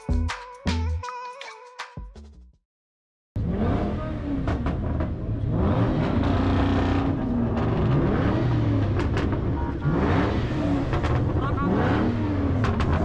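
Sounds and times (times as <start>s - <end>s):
car engines revving: 3.4s - 13.0s.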